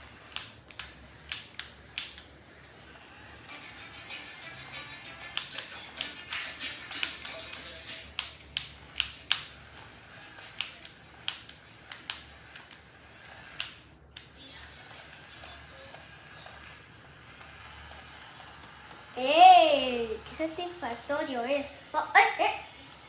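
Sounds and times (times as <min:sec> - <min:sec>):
toy propeller whirring: 0:00.0 - 0:23.0
sharp clicks: 0:04.6 - 0:19.0.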